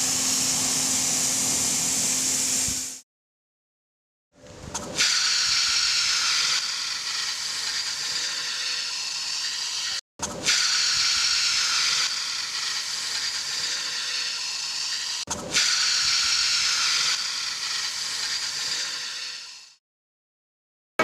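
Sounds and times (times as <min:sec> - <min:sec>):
pressure washer spraying water: 0:00.0 - 0:03.0.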